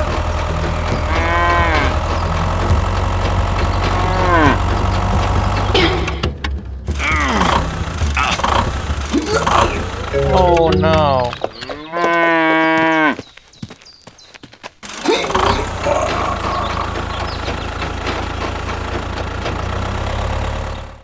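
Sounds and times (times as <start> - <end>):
small motor humming: 0.0 - 11.0, 14.8 - 21.0.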